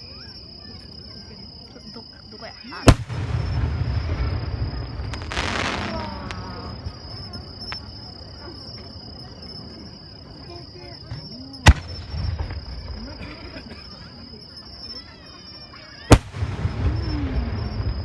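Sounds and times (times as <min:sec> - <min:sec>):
high insect trill: 0:00.0 - 0:18.0
sharp firework bang: 0:02.9 - 0:07.3, 0:11.7 - 0:12.8, 0:16.1 - 0:18.0
firework crackling shower: 0:02.9 - 0:08.0, 0:16.1 - 0:18.0
firework burst rumbling echo: 0:02.9 - 0:08.2, 0:11.7 - 0:13.2, 0:16.1 - 0:18.0.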